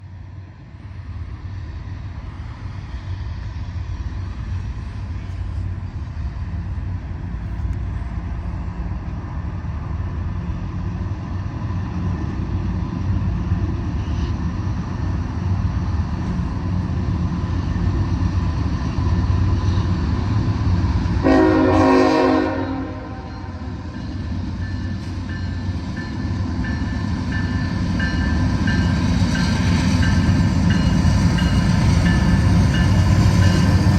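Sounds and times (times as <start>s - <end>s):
diesel train engine rumble: 0.0s - 33.9s
locomotive air horn: 21.2s - 23.6s.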